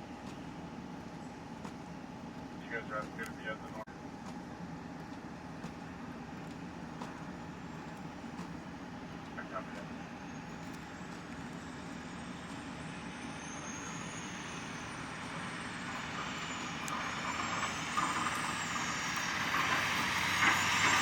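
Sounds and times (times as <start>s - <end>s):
faint high whine: 5.8s - 21.0s.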